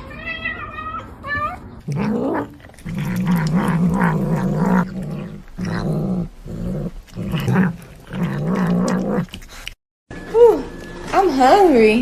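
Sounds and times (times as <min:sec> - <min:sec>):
cat growling: 0:00.1 - 0:09.8.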